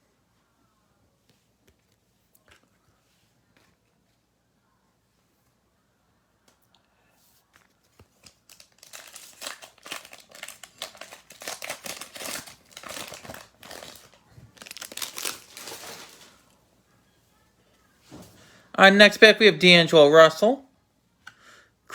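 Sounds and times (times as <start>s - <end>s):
plastic wrapper tearing and crinkling: 8.1s - 16.6s.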